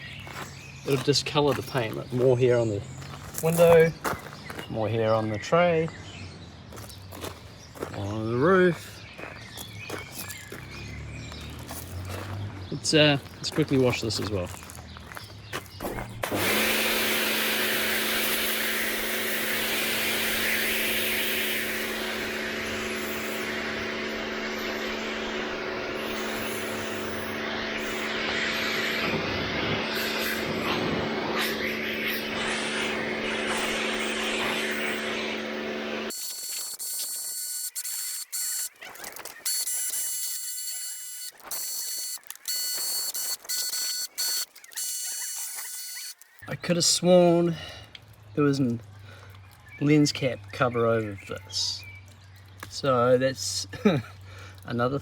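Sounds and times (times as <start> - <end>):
pressure washer humming: 15.9 - 46.6
water jet hissing: 16.2 - 38.3.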